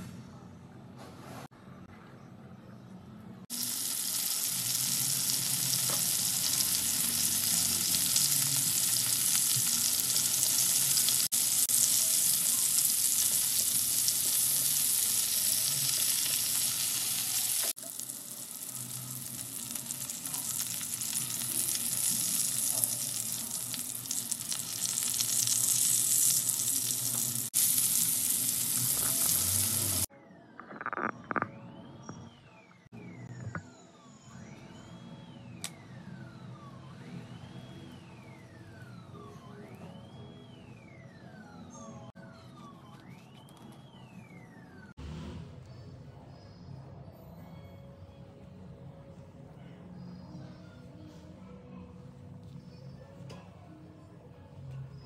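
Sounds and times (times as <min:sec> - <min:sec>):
kebabs sizzling in oil: 0:03.5 - 0:30.1.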